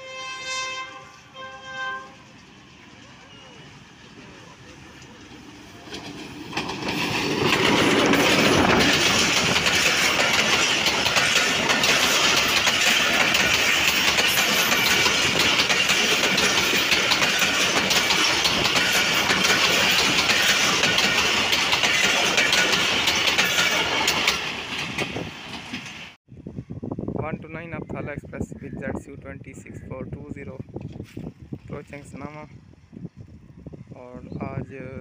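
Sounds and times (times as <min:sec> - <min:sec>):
train passing at speed: 0:00.0 - 0:26.2.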